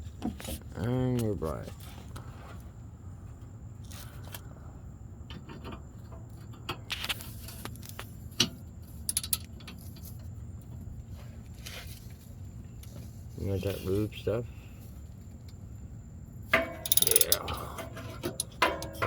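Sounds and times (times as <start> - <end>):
metal tools clinking on bolt: 9.0 - 9.8, 16.6 - 19.0.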